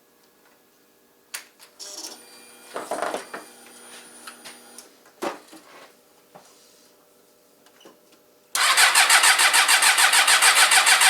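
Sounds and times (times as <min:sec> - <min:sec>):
motorcycle starter whir: 0:08.6 - 0:11.0.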